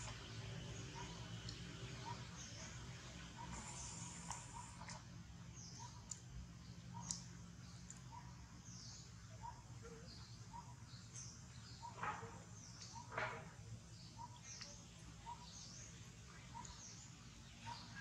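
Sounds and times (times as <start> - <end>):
low background hum: 0.0 - 18.0
faint bird chirps: 3.4 - 13.4.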